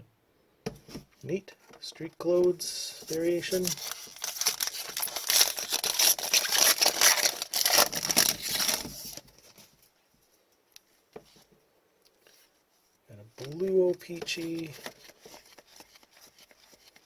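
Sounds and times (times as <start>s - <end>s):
foil wrapper tearing and crinkling: 3.1s - 9.2s.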